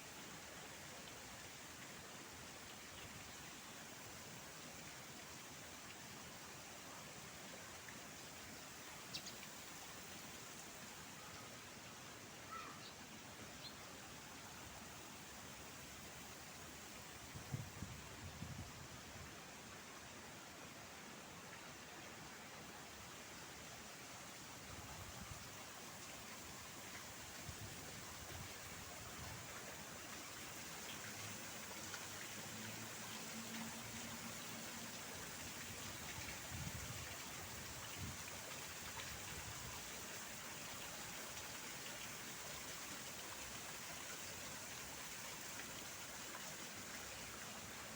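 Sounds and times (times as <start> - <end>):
faint outdoor park hiss: 0.0 - 47.9.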